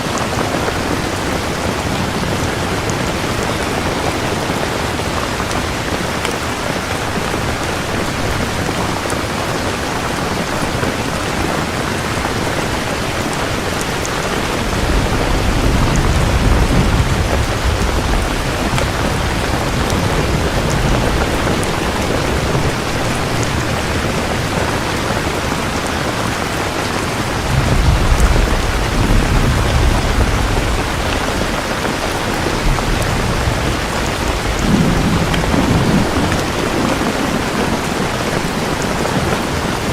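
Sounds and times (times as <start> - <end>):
heavy rain: 0.0 - 39.9
thunder rumbling low: 12.4 - 25.8, 27.1 - 39.9.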